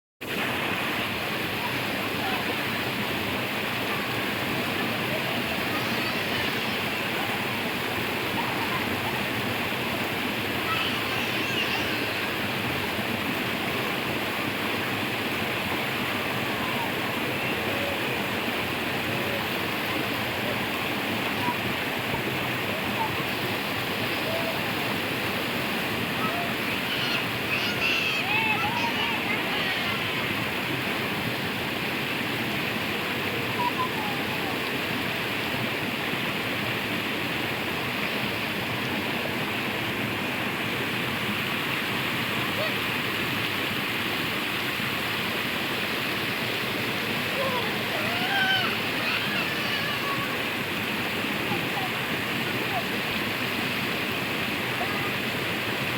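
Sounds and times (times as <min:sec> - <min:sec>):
rushing stream water: 0:00.2 - 0:55.9.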